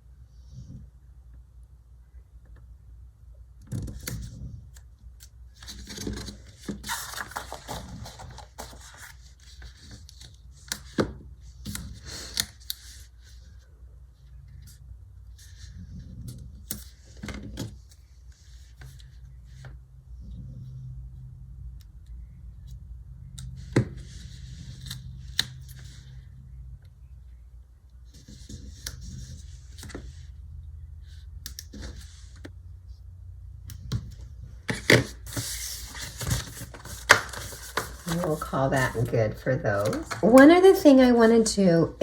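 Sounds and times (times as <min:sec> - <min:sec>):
paper rustling: 0:05.6 - 0:10.8, 0:34.7 - 0:41.4
steady low hum: 0:17.7 - 0:42.0.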